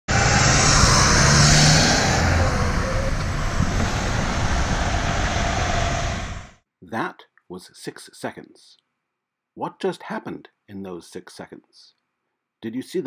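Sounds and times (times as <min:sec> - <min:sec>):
steady traffic rumble: 0:00.1 - 0:06.6
truck engine running: 0:00.1 - 0:06.6.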